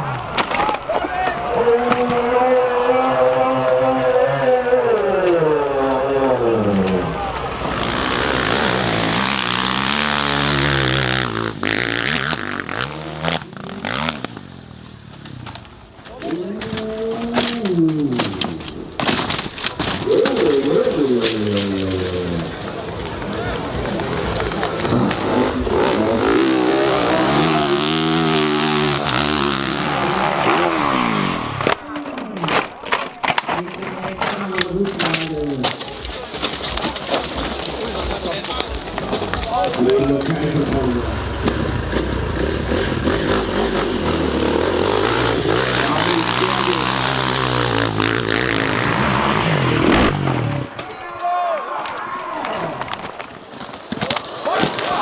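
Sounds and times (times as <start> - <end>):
dirt bike engine revving: 1.5 - 15.4, 23.9 - 31.8, 39.8 - 50.8.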